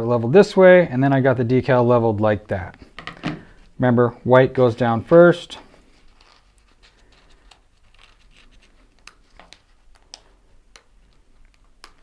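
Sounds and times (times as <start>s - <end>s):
decal sheet clicks and rustles: 6.0s - 12.0s.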